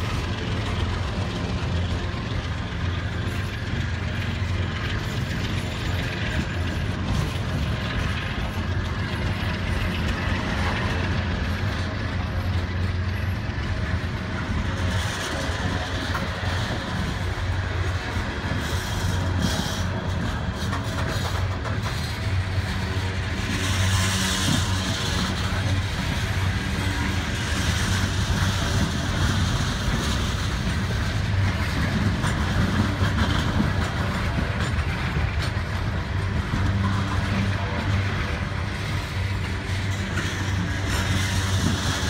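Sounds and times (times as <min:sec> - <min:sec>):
freight train rumbling and rattling: 0:00.0 - 0:42.0.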